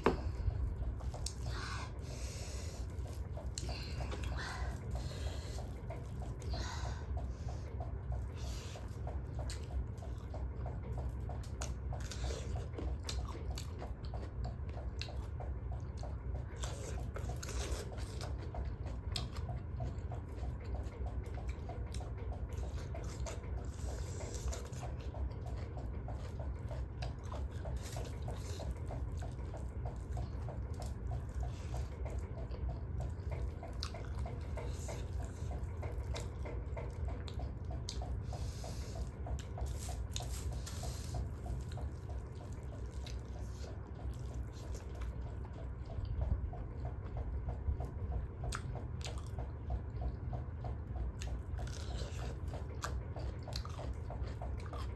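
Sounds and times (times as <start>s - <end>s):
low hum: 0.0s - 12.2s
wet chewing and mouth clicks: 0.0s - 54.9s.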